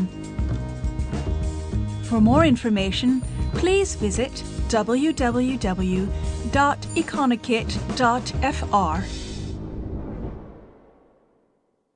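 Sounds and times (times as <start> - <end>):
background music: 0.0 - 9.5.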